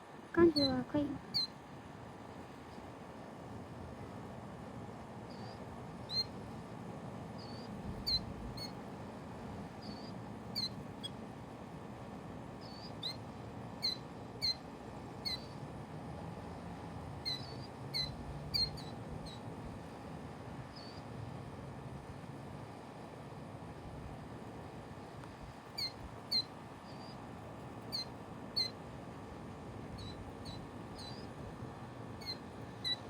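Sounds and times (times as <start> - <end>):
small bird chirping: 0.4 - 1.6, 5.2 - 6.6, 7.4 - 8.8, 9.7 - 11.2, 12.6 - 15.6, 17.2 - 19.5, 20.7 - 21.1, 25.6 - 28.8, 29.9 - 33.0.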